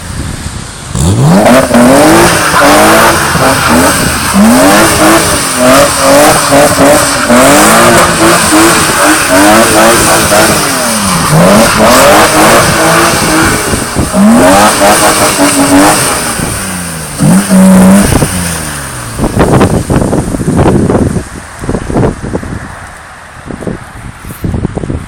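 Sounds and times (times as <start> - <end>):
car engine revving hard: 0.9 - 22.5.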